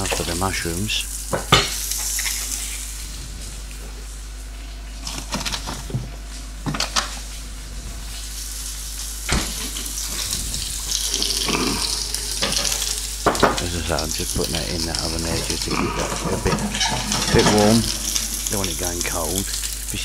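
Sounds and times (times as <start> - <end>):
steady hiss: 0.0 - 5.0, 6.2 - 20.0
utensils and dishes clinking: 11.0 - 13.7, 14.4 - 19.8.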